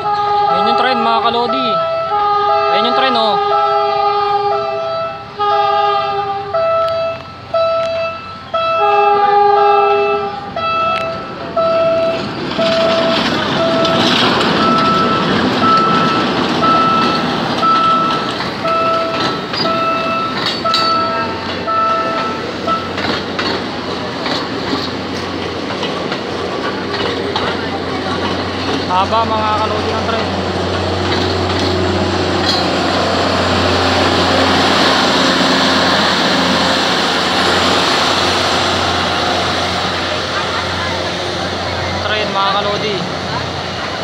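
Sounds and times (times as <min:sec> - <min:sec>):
locomotive horn: 0:00.0 - 0:14.0
train rumbling and clattering past: 0:00.0 - 0:44.0
level-crossing alarm beeping: 0:00.1 - 0:05.8, 0:06.5 - 0:23.5.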